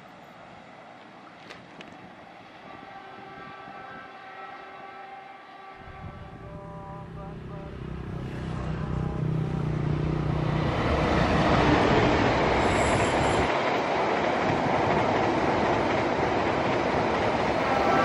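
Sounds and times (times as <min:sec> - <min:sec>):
train wheels rushing on rails: 0:09.7 - 0:18.0.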